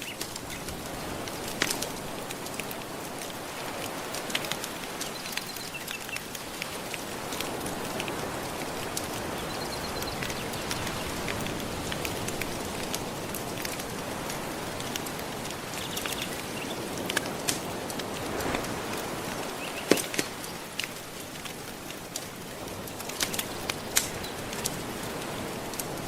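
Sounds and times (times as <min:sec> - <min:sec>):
ocean waves lapping on shore: 0:00.0 - 0:26.0
wood fire crackling: 0:00.0 - 0:26.0.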